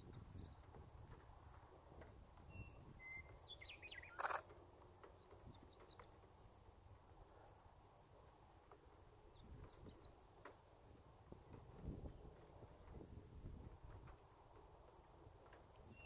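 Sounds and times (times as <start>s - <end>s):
small birds chirping: 0.0s - 0.8s, 2.4s - 4.5s, 5.1s - 7.2s, 9.2s - 11.2s
phone camera shutter click: 4.1s - 4.4s.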